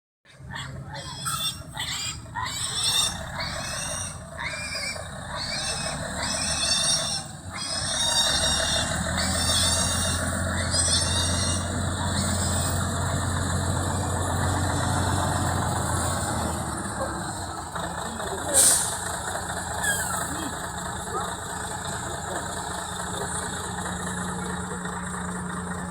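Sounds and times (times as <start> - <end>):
engine humming: 0.3 - 25.9
high arching call: 0.4 - 12.9, 19.8 - 20.7.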